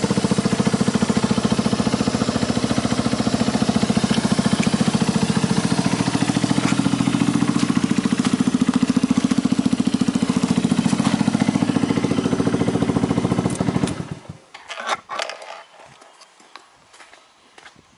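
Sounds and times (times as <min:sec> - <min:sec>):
scooter engine idling: 0:00.0 - 0:14.5
short scrapes and knocks: 0:14.5 - 0:16.3.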